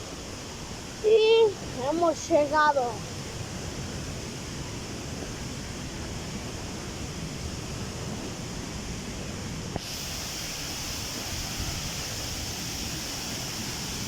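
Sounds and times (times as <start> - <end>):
rushing waterfalls: 0.0 - 14.0.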